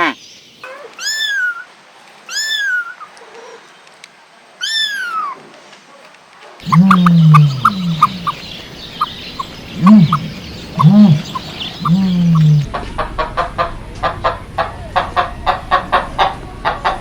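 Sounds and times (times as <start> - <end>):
chicken chirps: 2.3 - 3.1, 6.6 - 12.7
chickens clucking: 6.6 - 17.0.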